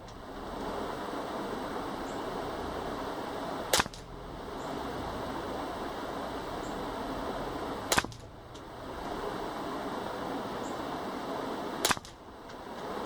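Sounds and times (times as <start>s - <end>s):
steady background hiss: 0.0s - 13.0s
suppressed rifle shots: 3.7s - 4.7s, 7.8s - 8.8s, 11.8s - 12.7s.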